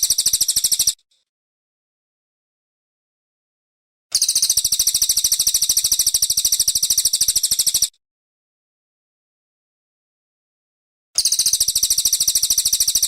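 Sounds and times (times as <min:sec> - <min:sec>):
songbird high-pitched trill: 0:00.0 - 0:01.0, 0:04.2 - 0:07.9, 0:11.2 - 0:13.0.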